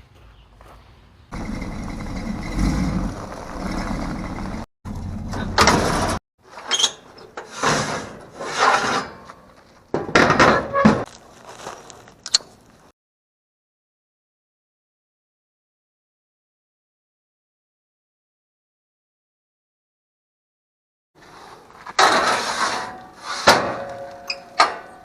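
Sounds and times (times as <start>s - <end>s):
truck engine idling and revving: 1.3s - 6.2s.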